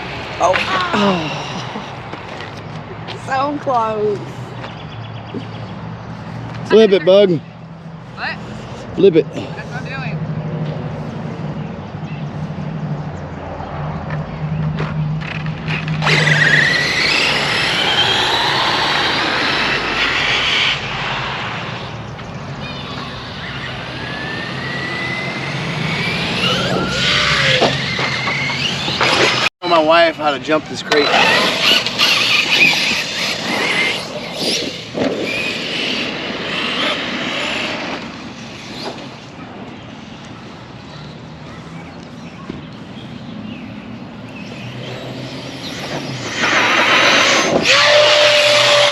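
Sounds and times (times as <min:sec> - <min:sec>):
tyres rushing: 0:14.9 - 0:39.6
rc car motor whine: 0:15.2 - 0:29.9, 0:30.5 - 0:39.3, 0:44.3 - 0:48.9.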